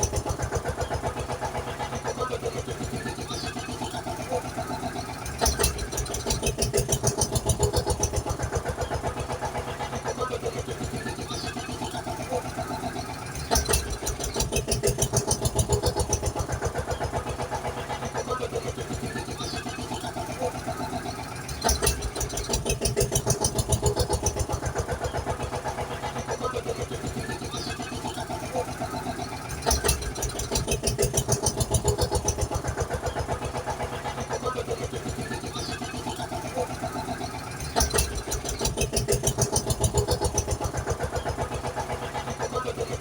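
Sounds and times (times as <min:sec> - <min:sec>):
engine puttering: 0:00.0 - 0:43.0
engine starting burst: 0:10.9 - 0:16.5, 0:18.9 - 0:24.6, 0:25.3 - 0:43.0.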